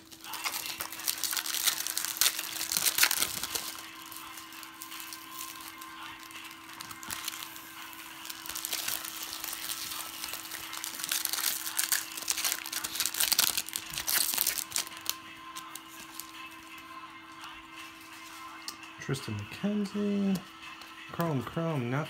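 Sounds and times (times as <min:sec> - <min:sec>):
card pack wrapper tearing and crinkling: 0:00.0 - 0:16.5
cards being handled: 0:00.0 - 0:19.4
faint steady hum: 0:00.0 - 0:22.0.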